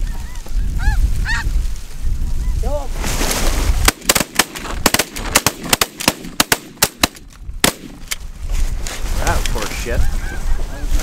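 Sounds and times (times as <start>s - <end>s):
wind rumble on microphone: 0.0s - 4.1s, 7.2s - 11.0s
shotgun blasts: 3.8s - 8.1s.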